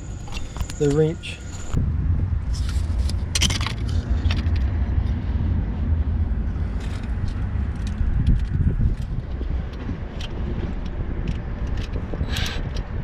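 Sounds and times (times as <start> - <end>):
metal tools clinking: 0.0 - 1.8
steady low rumble: 0.0 - 13.0.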